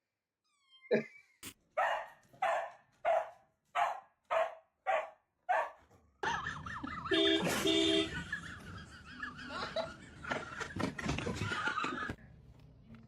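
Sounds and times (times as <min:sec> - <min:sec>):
dog barking: 0:01.8 - 0:05.9.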